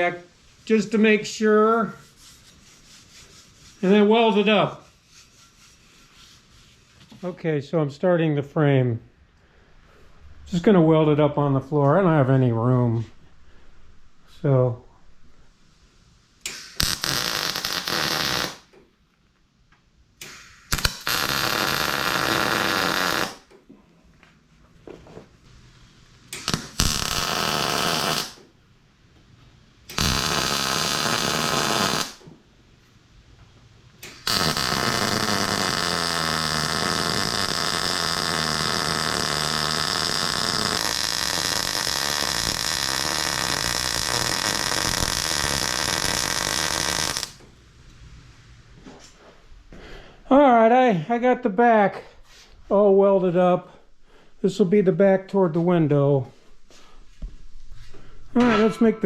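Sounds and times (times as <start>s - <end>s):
electric arc welding: 16.4s - 18.8s, 20.2s - 23.5s, 26.3s - 28.4s, 29.9s - 32.2s, 34.0s - 47.4s.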